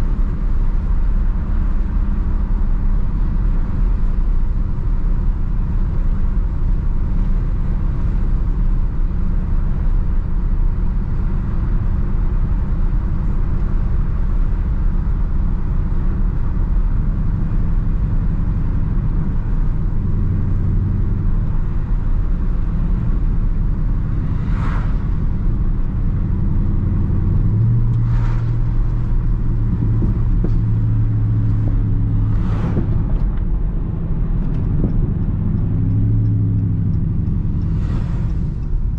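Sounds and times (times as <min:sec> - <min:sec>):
car engine exhaust rumble: 0:00.0 - 0:38.9
road noise: 0:00.0 - 0:38.9.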